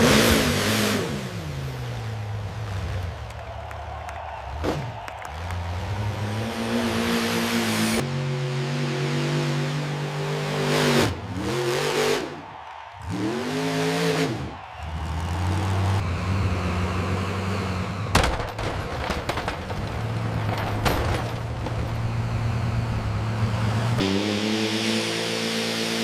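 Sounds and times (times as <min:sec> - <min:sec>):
tractor engine revving: 0:13.0 - 0:26.0.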